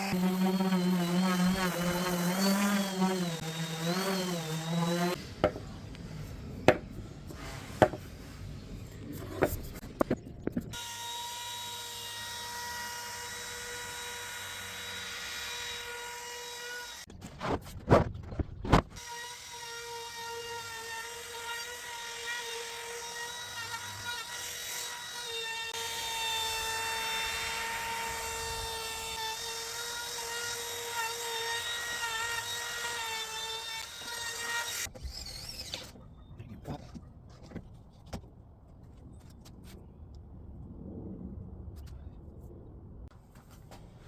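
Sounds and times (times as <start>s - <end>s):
power tool whine: 0.0s - 6.3s.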